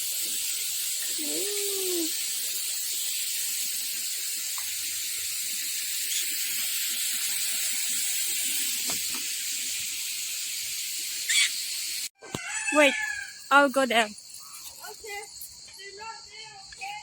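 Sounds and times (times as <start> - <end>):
fountain water splashing: 0.0 - 12.1.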